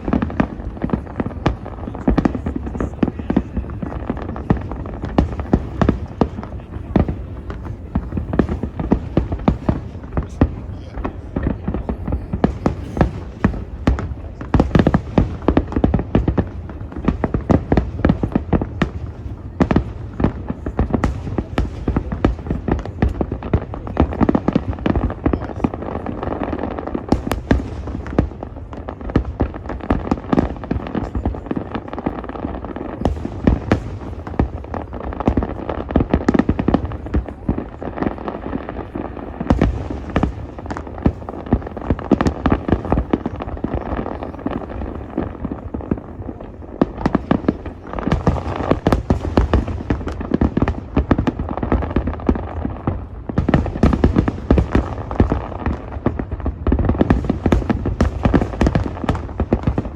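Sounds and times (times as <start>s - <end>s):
fireworks bangs and booms: 0.0s - 59.9s.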